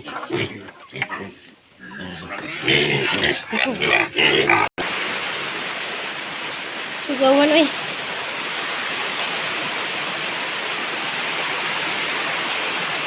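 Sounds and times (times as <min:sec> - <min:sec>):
piglet squealing and grunting: 0:00.0 - 0:04.7
light rain hissing: 0:04.8 - 0:13.0.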